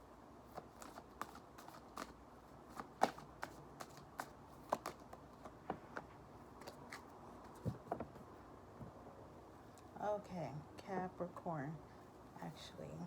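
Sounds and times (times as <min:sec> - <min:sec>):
cards being shuffled: 0:00.5 - 0:08.0.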